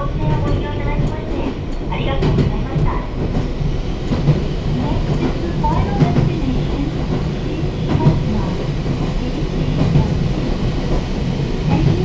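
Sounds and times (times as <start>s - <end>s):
train interior rumble: 0.0s - 12.0s.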